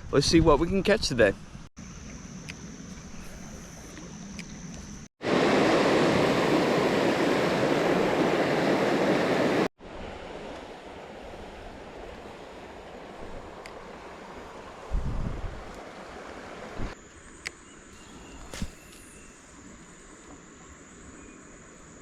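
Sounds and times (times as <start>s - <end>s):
creek water rushing: 5.2s - 17.0s.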